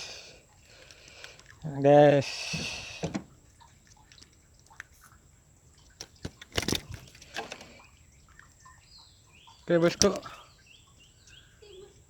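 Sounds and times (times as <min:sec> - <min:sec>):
soft water splashes: 0:00.0 - 0:12.0
handling knocks: 0:02.4 - 0:03.4, 0:06.0 - 0:07.8, 0:09.8 - 0:10.4.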